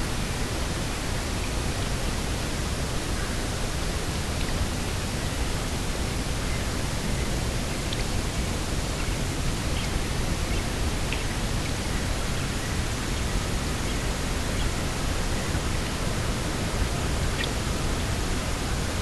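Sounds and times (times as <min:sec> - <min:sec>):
rushing wind: 0:00.0 - 0:19.0.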